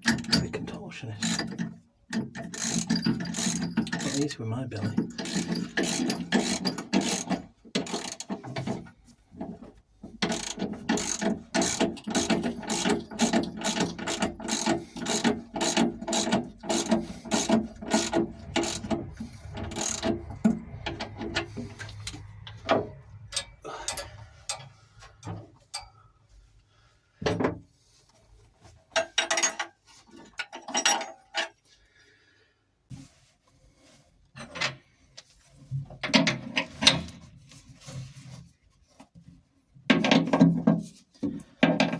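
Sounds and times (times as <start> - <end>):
ratchet wrench clicking: 2.5 - 4.2, 5.2 - 8.2, 10.2 - 20.2.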